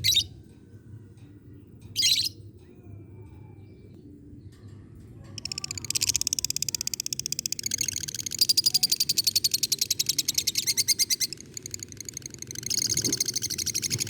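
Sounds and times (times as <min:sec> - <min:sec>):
bird high-pitched pulsed chatter: 0:00.0 - 0:00.4, 0:01.9 - 0:02.4, 0:05.4 - 0:14.0.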